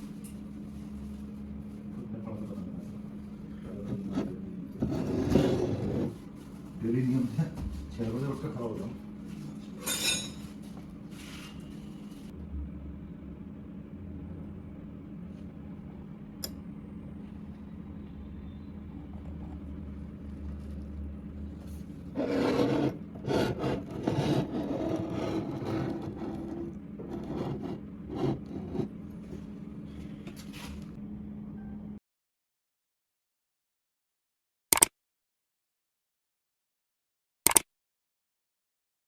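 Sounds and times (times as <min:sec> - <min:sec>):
metal scraping and rubbing: 0:03.8 - 0:06.2, 0:21.7 - 0:29.0.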